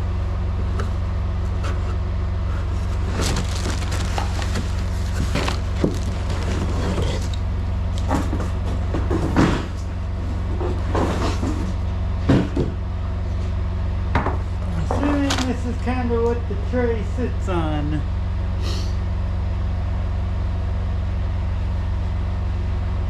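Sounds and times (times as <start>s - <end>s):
diesel truck engine idling: 0.0s - 9.0s.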